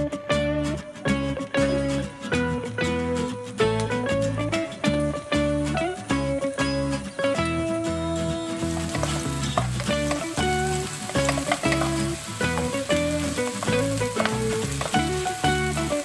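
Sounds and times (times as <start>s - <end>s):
background music: 0.0s - 16.0s
onion and garlic sizzling in oil: 8.6s - 16.0s
wooden spatula stirring in wok: 8.6s - 16.0s.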